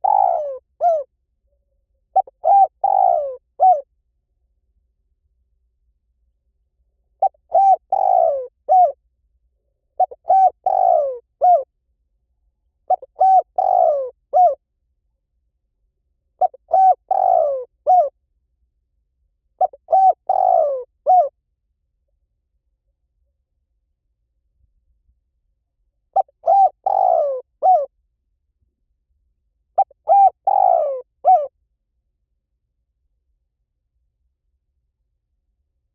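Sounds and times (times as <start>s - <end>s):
dove cooing: 0.0s - 1.1s, 2.1s - 3.8s, 7.2s - 9.0s, 10.0s - 11.7s, 12.9s - 14.6s, 16.4s - 18.1s, 19.6s - 21.3s, 26.2s - 27.9s, 29.8s - 31.5s.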